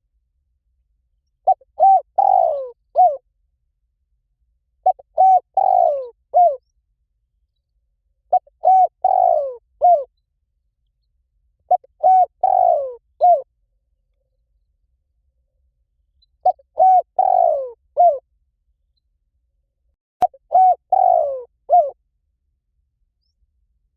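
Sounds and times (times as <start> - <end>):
dove cooing: 1.4 - 3.2, 4.8 - 6.6, 8.3 - 10.1, 11.7 - 13.5, 16.4 - 18.2, 20.2 - 22.0.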